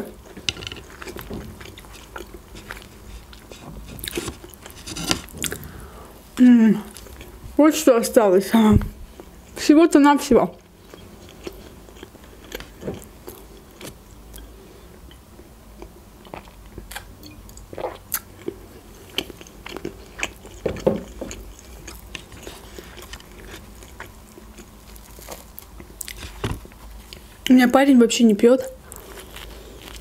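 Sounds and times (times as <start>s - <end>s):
person chewing bread: 0.1s - 6.1s, 6.9s - 7.4s, 10.6s - 27.5s, 28.8s - 30.0s
bread tearing: 24.9s - 26.8s.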